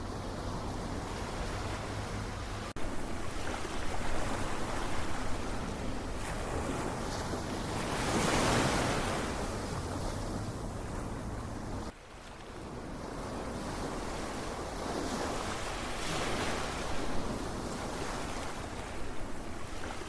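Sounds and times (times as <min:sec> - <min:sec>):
ocean waves washing on shore: 0:00.0 - 0:20.0.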